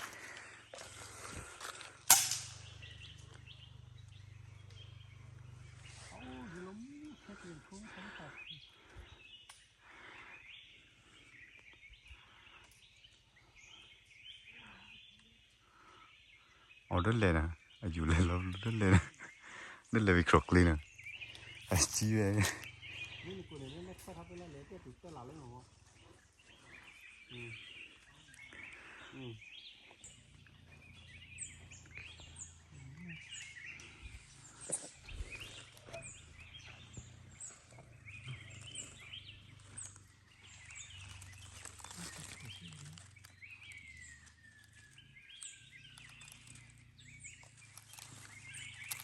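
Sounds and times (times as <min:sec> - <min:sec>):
faint forest ambience: 0:00.0 - 0:49.0
small birds chirping: 0:00.0 - 0:49.0
faint low hum: 0:00.2 - 0:08.9.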